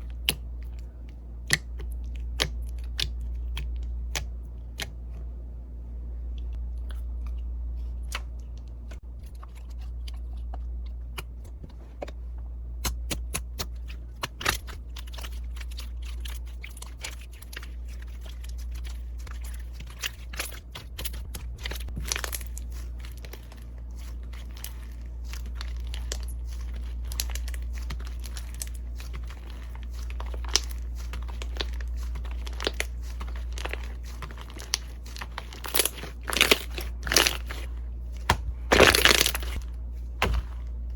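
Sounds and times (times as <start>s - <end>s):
steady low hum: 0.0s - 40.9s
slime crackling and popping: 12.8s - 40.6s.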